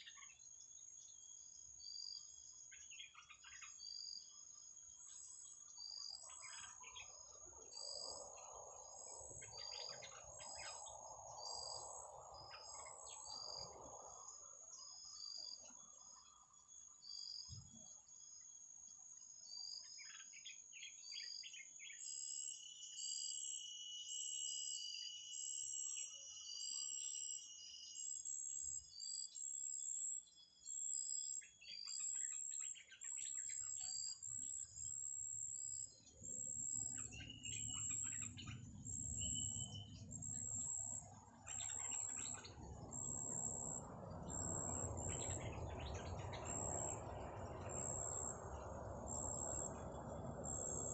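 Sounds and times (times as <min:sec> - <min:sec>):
small birds chirping: 0:00.0 - 0:18.6, 0:19.2 - 0:23.8, 0:25.8 - 0:50.9.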